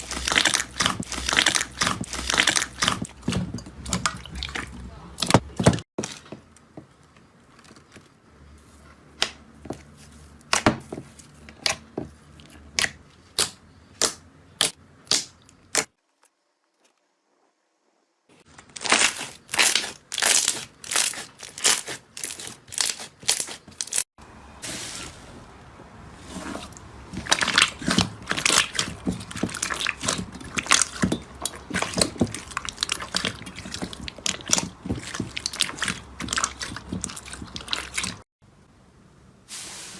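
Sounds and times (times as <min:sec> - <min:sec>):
slime popping and crackling: 0:00.0 - 0:04.6, 0:18.7 - 0:24.0, 0:27.1 - 0:38.2.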